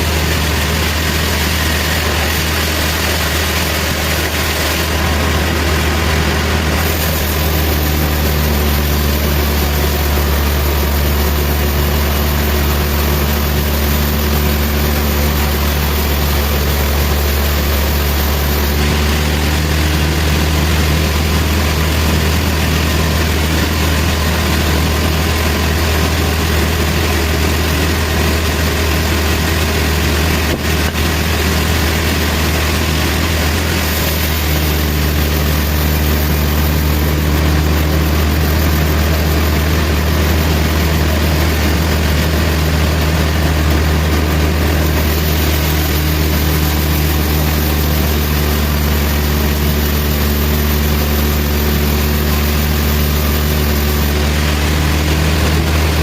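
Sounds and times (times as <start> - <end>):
sawmill machinery droning: 0.0 - 56.0.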